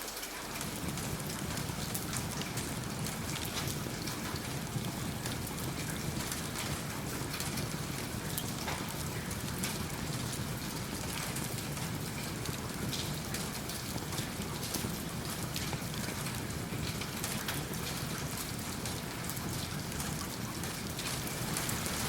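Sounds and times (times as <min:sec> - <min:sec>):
steady rain falling: 0:00.0 - 0:22.0
wood fire crackling: 0:12.4 - 0:22.0.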